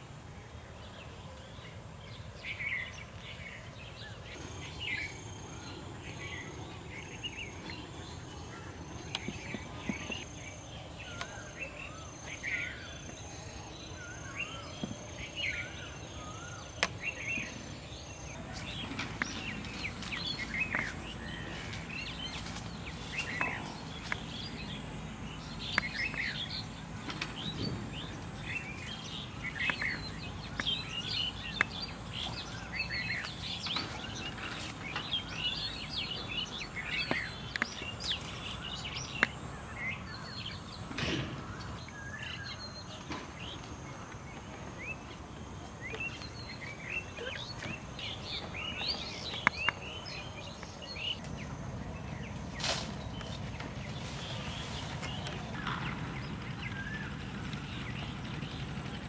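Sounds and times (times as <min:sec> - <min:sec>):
birds chirping and calling: 0:00.8 - 0:59.0.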